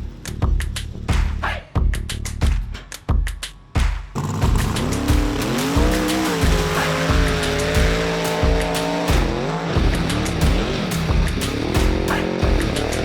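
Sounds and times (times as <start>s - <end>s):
music with heavy beat: 0.0s - 13.0s
truck engine revving: 4.2s - 13.0s.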